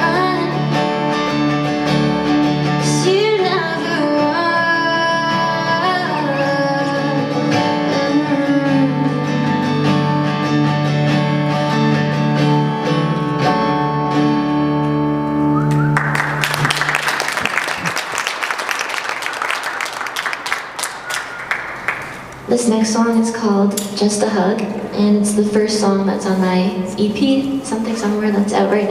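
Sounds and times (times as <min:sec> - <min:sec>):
sustained guitar chords: 0:00.0 - 0:16.7
audience applause: 0:15.7 - 0:22.5.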